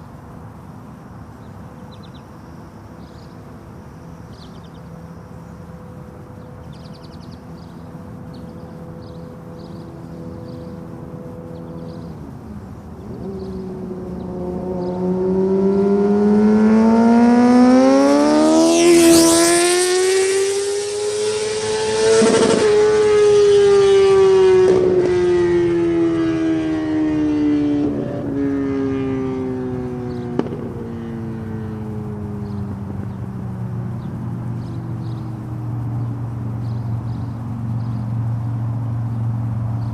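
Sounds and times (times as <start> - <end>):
motorcycle accelerating past: 4.2 - 39.9
exhaust cracks: 18.8 - 25.3, 27.8 - 39.9.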